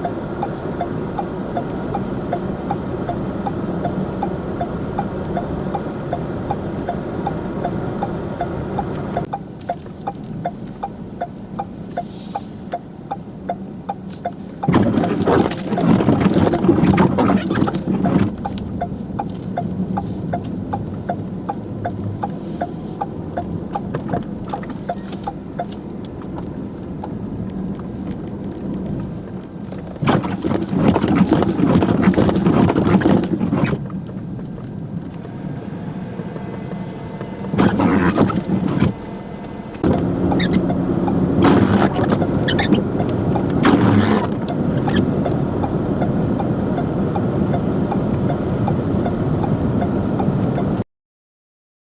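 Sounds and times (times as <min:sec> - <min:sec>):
vehicle engine and road hum: 0:00.0 - 0:50.9.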